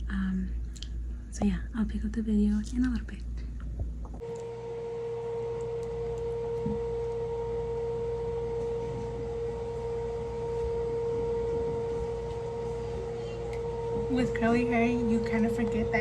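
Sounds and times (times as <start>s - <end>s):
steady tone: 4.2s - 16.0s.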